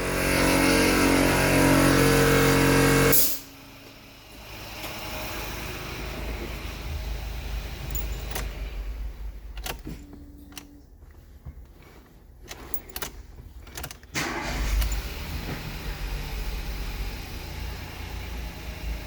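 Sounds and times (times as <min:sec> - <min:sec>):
car engine starting and running: 0:00.0 - 0:19.0
keys jangling: 0:07.6 - 0:10.8, 0:12.4 - 0:15.1.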